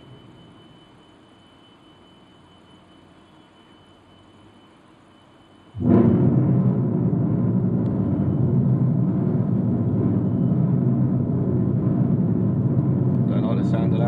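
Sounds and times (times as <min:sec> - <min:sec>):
loud low droning in the sky: 0:00.0 - 0:01.0, 0:05.7 - 0:14.0.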